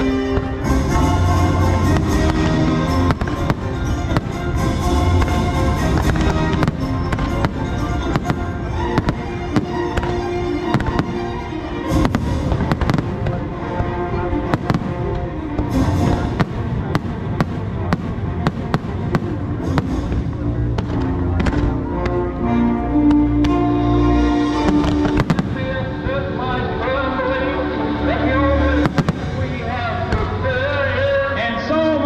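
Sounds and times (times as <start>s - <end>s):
fireworks bangs: 0.0s - 22.2s, 24.4s - 26.4s, 28.8s - 30.7s
loud show music: 0.0s - 32.0s.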